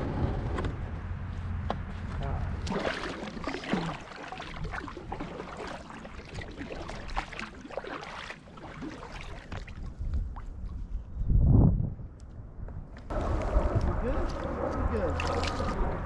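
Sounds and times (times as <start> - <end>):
water splashing around kayak: 2.1 - 10.9, 13.1 - 15.8
loud low rumble: 13.1 - 16.0.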